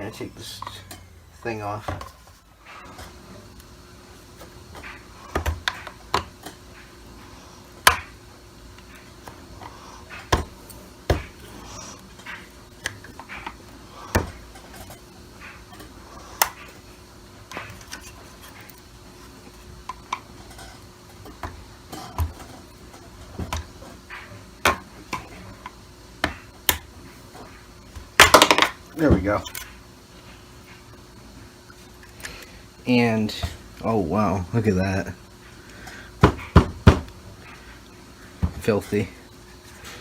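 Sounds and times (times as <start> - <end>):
plastic parts clicking and knocking: 28.2 - 29.7.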